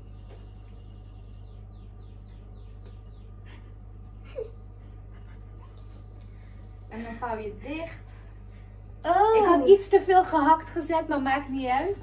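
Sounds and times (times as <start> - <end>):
bird chirping: 0.0 - 7.8
steady low hum: 0.0 - 12.0.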